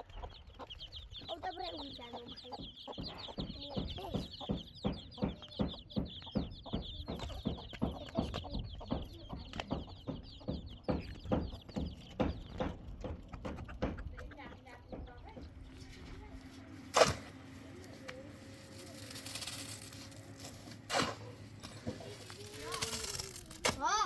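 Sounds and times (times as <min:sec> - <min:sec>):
high-pitched chirping: 0:00.0 - 0:12.7
chickens clucking: 0:00.0 - 0:24.0.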